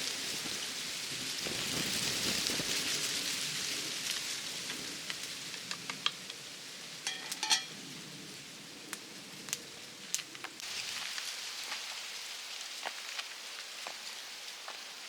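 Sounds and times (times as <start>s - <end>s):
metal utensil clattering on pot: 7.0s - 7.7s
food sizzling in hot oil: 7.0s - 7.8s, 10.6s - 15.0s.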